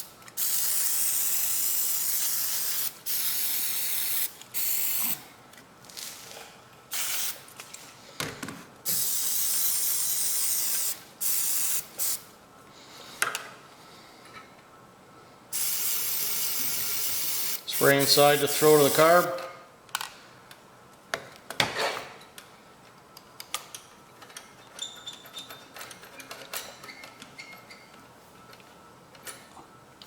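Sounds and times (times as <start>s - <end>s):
aerosol can spraying: 0.4s - 5.2s, 7.0s - 7.4s, 8.9s - 12.2s, 15.6s - 19.3s.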